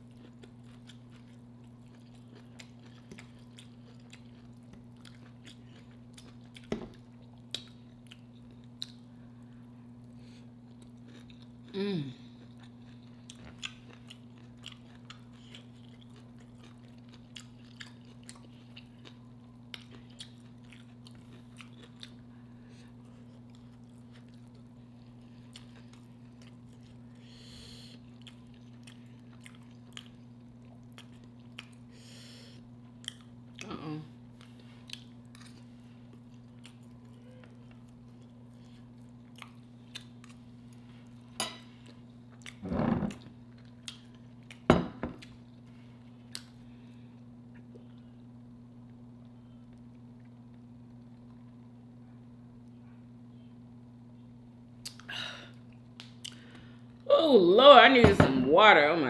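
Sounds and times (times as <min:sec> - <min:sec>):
close-up chewing: 0:00.0 - 0:33.7, 0:34.3 - 0:42.6
steady low hum: 0:00.0 - 0:59.0.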